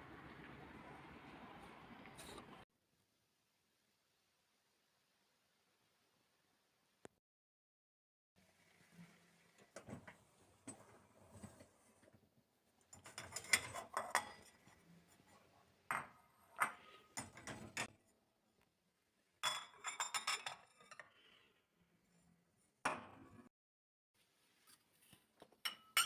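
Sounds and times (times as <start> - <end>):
dishes and glassware clinking: 12.9 - 14.8, 15.9 - 17.9, 19.4 - 21.1, 25.6 - 26.0.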